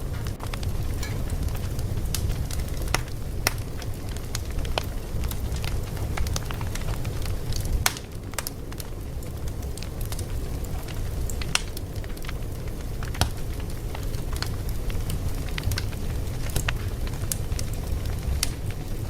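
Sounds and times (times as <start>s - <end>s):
fire popping and crackling: 0.0s - 19.0s
wood fire rumbling: 0.0s - 19.0s.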